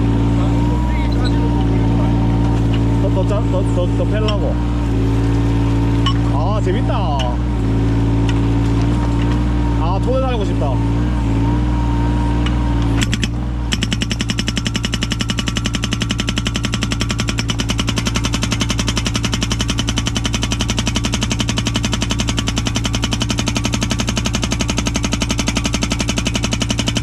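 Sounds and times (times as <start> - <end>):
diesel engine running: 0.0 - 27.0
hydraulic breaker hammering: 12.4 - 27.0.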